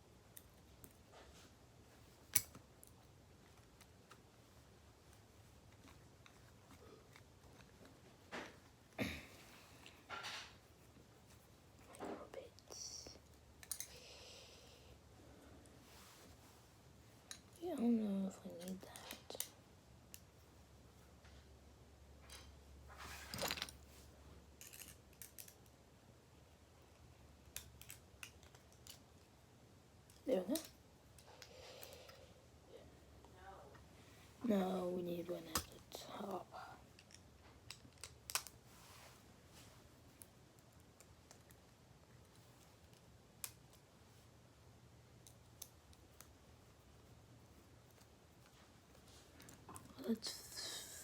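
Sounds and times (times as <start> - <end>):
small metal parts clicking: 2.3 - 2.9, 13.6 - 14.0, 24.6 - 25.7.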